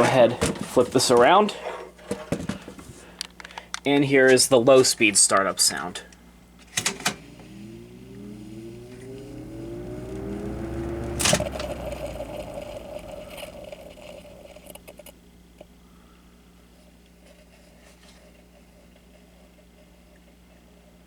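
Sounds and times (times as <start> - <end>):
fan motor hum rising in pitch: 6.8 - 15.1.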